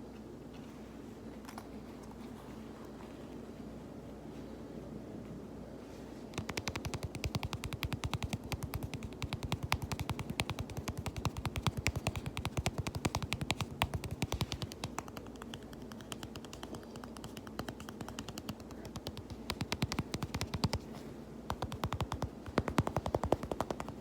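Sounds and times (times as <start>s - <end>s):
rapid tapping on fabric pouch: 6.4s - 24.0s.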